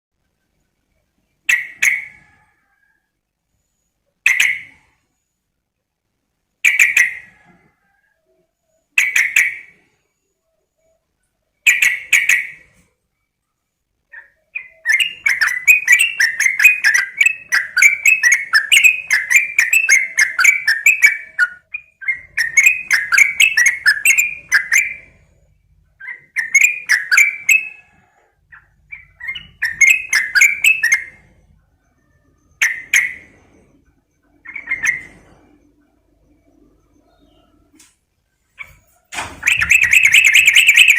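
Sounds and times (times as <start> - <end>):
bird calling: 14.0 - 25.4, 26.0 - 37.9, 38.5 - 40.9
bubbly chattering birdsong: 14.1 - 25.2, 26.0 - 31.2, 39.4 - 40.9.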